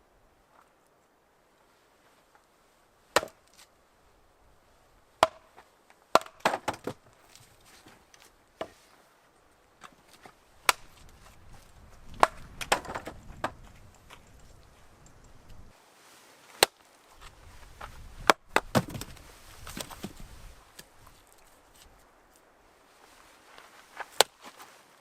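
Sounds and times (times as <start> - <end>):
wood crackling: 1.6 - 15.8, 16.5 - 24.6
firewood being split: 3.1 - 3.7, 5.2 - 8.8, 9.8 - 15.7, 16.6 - 22.0.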